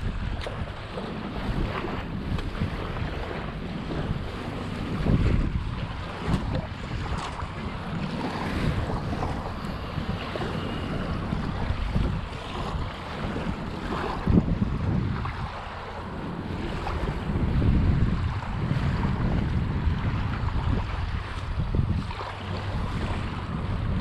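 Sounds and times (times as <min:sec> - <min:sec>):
water lapping: 0:00.0 - 0:24.0
wind buffeting microphone: 0:00.0 - 0:24.0.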